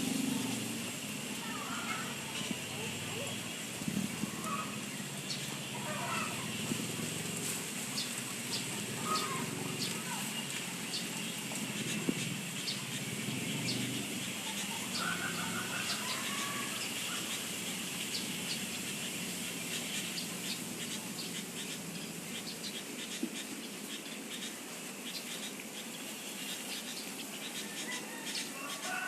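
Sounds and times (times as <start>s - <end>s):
insect hum: 0.0s - 29.0s
faint warbling bird call: 8.8s - 10.4s.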